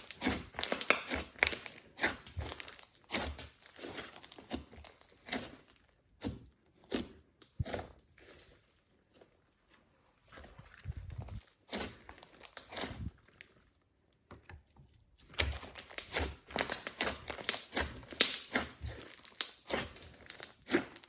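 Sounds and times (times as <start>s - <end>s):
slime squished by hand: 0.0s - 8.6s, 15.2s - 21.0s.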